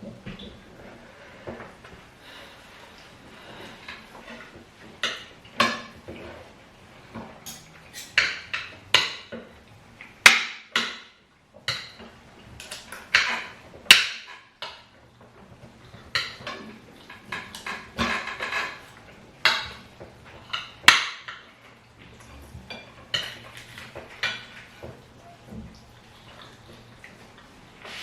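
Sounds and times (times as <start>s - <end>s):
spoons clinking against plates: 7.4s - 9.3s.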